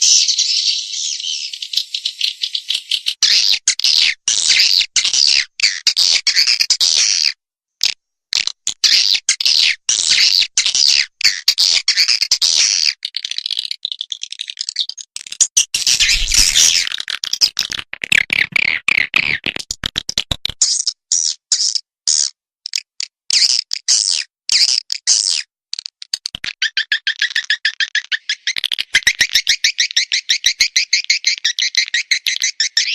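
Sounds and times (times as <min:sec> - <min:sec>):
swiftlet twittering calls: 0:00.0 - 0:03.5, 0:15.8 - 0:16.9.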